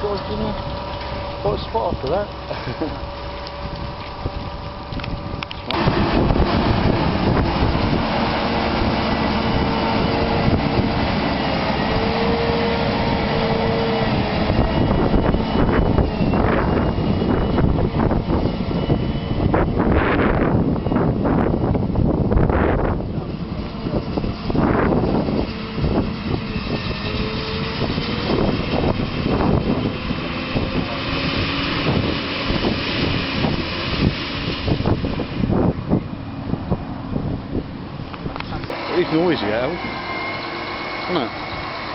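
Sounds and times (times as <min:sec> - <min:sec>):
tractor engine under load: 0:00.0 - 0:18.9
steady whine: 0:00.0 - 0:41.9
tractor engines droning: 0:00.0 - 0:41.9
wind buffeting microphone: 0:00.0 - 0:41.9.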